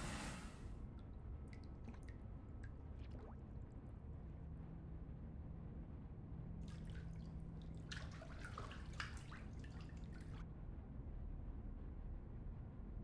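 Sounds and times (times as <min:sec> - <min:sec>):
water dripping and splashing: 0:01.5 - 0:03.4, 0:06.7 - 0:10.4.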